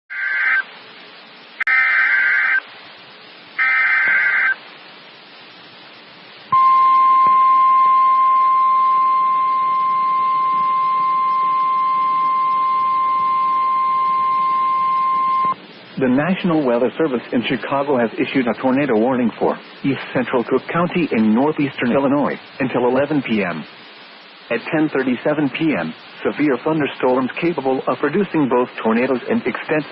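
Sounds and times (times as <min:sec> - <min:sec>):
digital data bursts: 0:00.1 - 0:00.7, 0:03.6 - 0:04.6
steady warning alarm tone: 0:03.6 - 0:04.6, 0:06.6 - 0:15.6.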